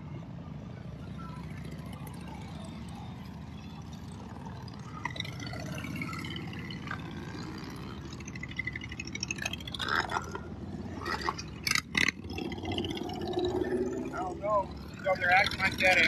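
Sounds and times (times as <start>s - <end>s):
faint distant voices: 0.0s - 12.0s
low outdoor rumble: 0.0s - 16.0s.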